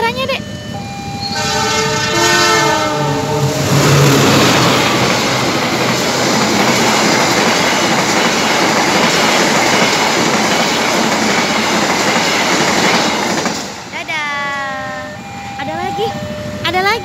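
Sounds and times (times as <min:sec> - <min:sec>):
passenger train passing: 0:00.1 - 0:17.0
train wheels rumbling on rails: 0:02.2 - 0:15.0.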